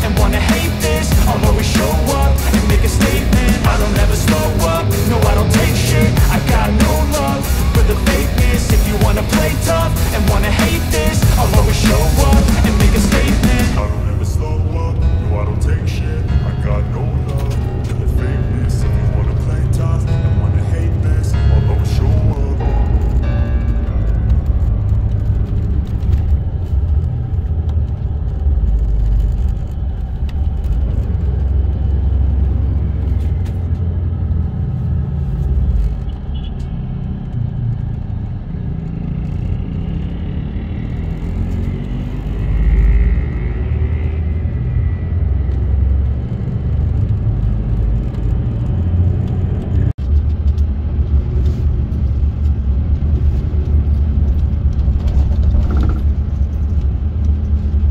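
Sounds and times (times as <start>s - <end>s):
bus engine and road rumble: 0.0s - 57.9s.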